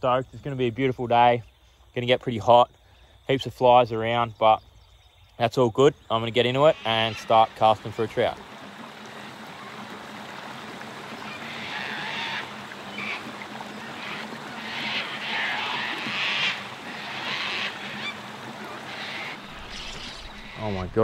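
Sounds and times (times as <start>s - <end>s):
harsh bird calls: 4.0s - 8.3s, 11.2s - 21.0s.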